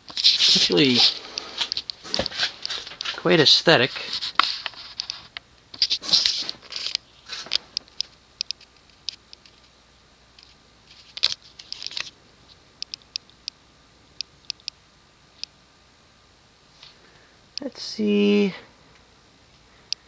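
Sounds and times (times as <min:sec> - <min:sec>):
ceiling fan running: 0:00.0 - 0:20.0
light clicks and ticks: 0:06.9 - 0:09.7, 0:12.8 - 0:13.6, 0:14.2 - 0:14.8.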